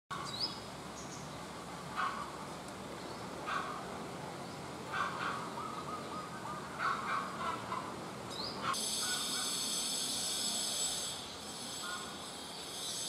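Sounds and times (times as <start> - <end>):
low-pitched bird calls: 4.9 - 9.6.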